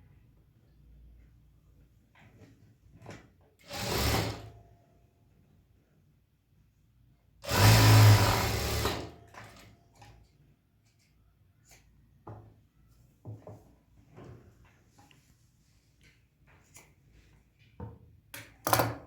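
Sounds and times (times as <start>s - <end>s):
electric sewing machine stitching: 3.6s - 4.6s, 7.4s - 9.6s.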